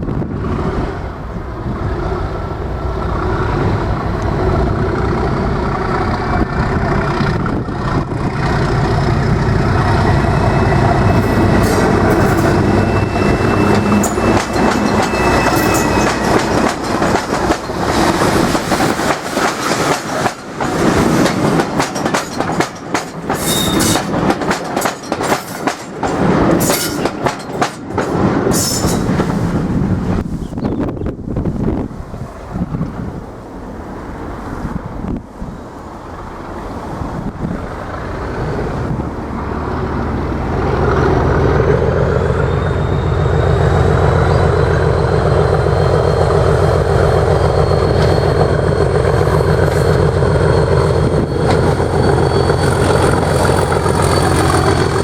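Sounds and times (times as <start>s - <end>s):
diesel locomotive engine: 0.0s - 55.0s
train wheels clattering: 6.9s - 29.6s, 40.8s - 55.0s.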